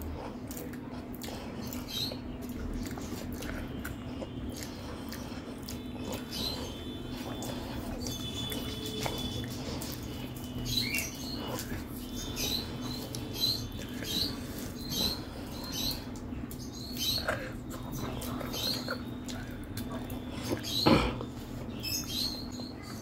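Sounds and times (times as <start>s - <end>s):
chewing with wet mouth smacks: 0.0s - 23.0s.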